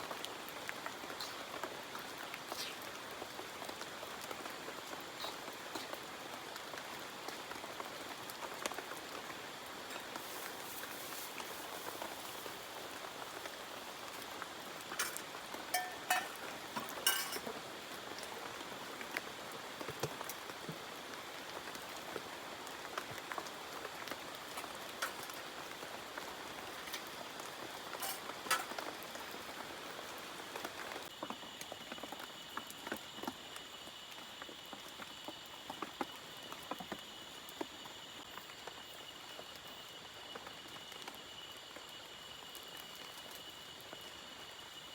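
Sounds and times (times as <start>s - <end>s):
steady rain: 0.0s - 44.9s
high insect trill: 9.0s - 17.6s, 24.1s - 29.5s
raindrops ticking: 11.5s - 17.4s.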